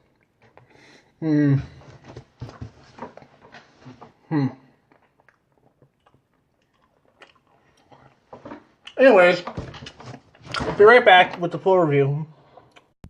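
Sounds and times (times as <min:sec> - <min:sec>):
person chewing: 0:04.8 - 0:09.0.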